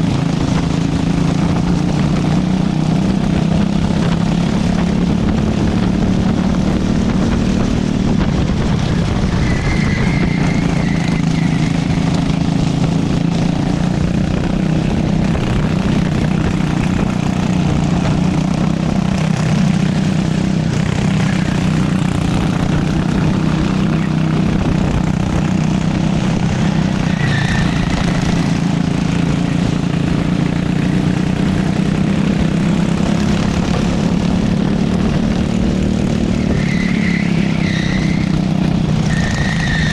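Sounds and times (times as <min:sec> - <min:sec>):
wind rushing: 0:00.0 - 0:29.8
go-kart engine racing: 0:00.0 - 0:39.9.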